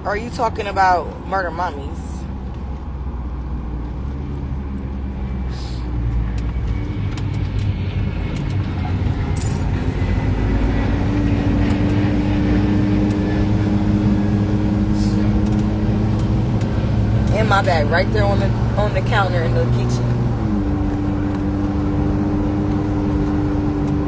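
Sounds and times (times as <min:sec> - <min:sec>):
car rumbling in motion: 0:00.0 - 0:24.0.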